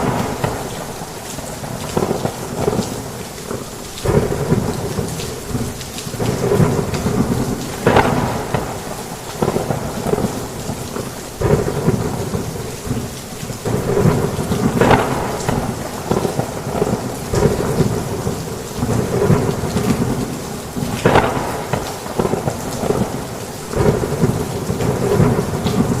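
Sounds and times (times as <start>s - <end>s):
thunder rumbling: 0.0s - 3.0s, 4.0s - 26.0s
heavy rain on a roof: 0.0s - 26.0s.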